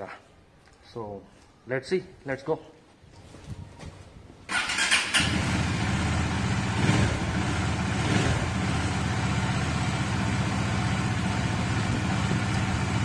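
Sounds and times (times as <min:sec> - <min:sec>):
motorcycle starter cranking: 0:04.5 - 0:05.6
motorcycle engine idling: 0:05.2 - 0:13.0.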